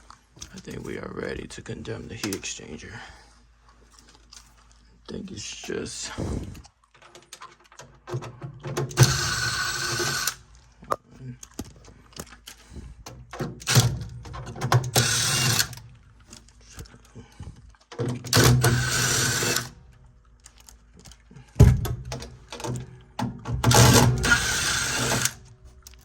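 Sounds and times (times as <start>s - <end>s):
cordless drill running: 9.0s - 10.4s, 14.8s - 15.8s, 18.4s - 19.8s, 23.7s - 25.4s.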